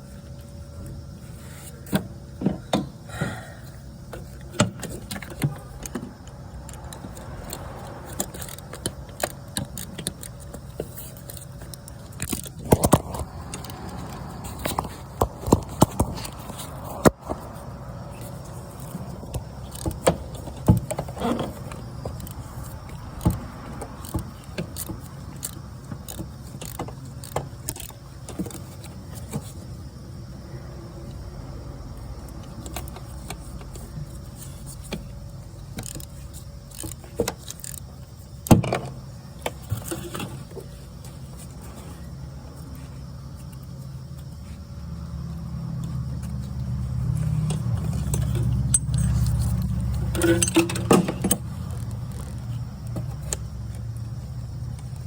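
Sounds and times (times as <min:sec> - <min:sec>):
hand tools clinking on metal: 0:47.4 - 0:51.4.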